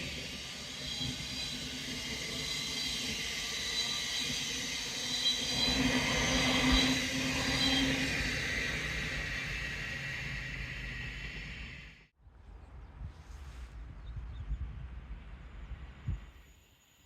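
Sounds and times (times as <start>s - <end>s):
train rumbling: 0.0s - 12.1s.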